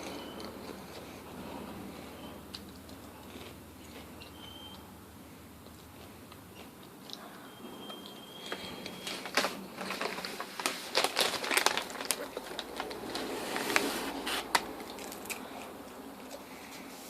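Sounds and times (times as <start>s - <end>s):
popcorn crunching: 2.5s - 4.8s, 5.4s - 16.7s
popcorn bag crinkling: 8.5s - 15.7s.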